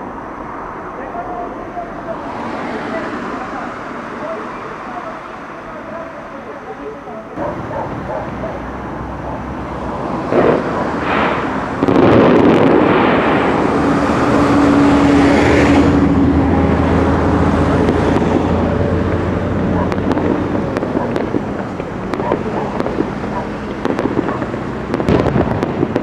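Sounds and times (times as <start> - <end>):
fireworks bangs: 7.4 - 16.1, 16.8 - 26.0
fireworks hissing crackle: 10.2 - 15.0, 19.6 - 26.0.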